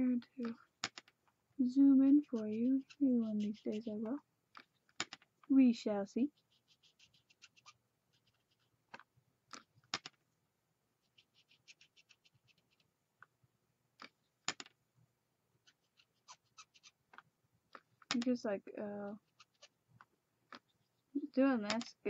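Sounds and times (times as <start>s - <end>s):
marker strokes on cardstock: 1.7s - 4.2s, 6.3s - 9.0s
sharp clicks: 8.9s - 10.2s, 14.0s - 14.7s.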